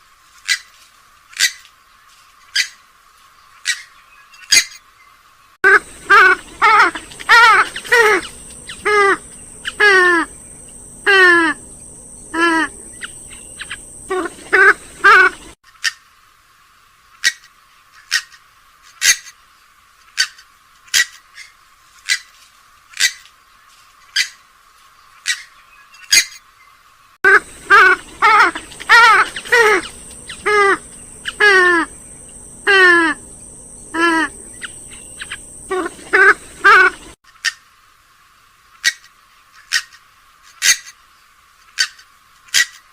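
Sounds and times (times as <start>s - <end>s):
sharp clicking bird calls: 5.8s - 11.0s, 11.6s - 16.0s, 25.2s - 26.4s, 27.4s - 37.7s, 38.8s - 41.0s, 41.6s - 42.9s
bird calls sliding down in pitch: 27.3s - 37.2s.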